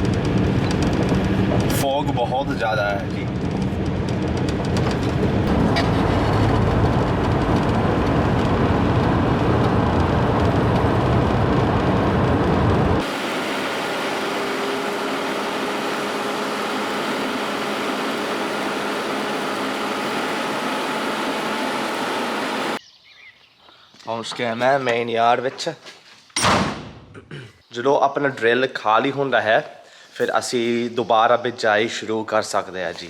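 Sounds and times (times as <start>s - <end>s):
vehicle engine and road rumble: 0.0s - 22.8s.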